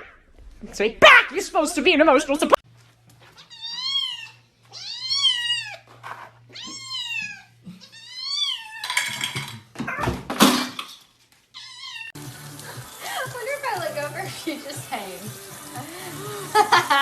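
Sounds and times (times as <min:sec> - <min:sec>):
cat meowing: 0:03.4 - 0:05.9, 0:06.5 - 0:09.1, 0:11.5 - 0:12.2
rough hissy noises: 0:12.2 - 0:17.0.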